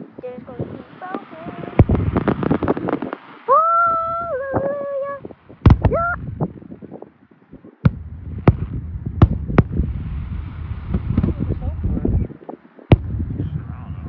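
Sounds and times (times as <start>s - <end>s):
low crackling rumble: 0.0s - 14.0s
fireworks bangs: 0.6s - 3.4s, 5.6s - 6.4s, 7.8s - 12.2s, 12.9s - 14.0s.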